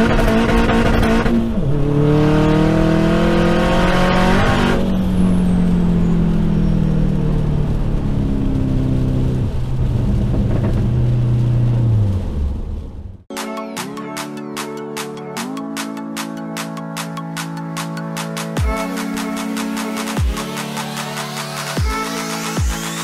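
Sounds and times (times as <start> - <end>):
car engine accelerating: 0.0 - 13.3.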